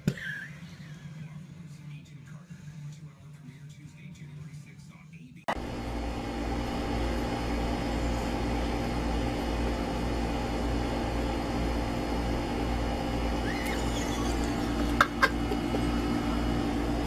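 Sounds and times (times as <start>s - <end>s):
steady machine hum: 5.5s - 17.0s.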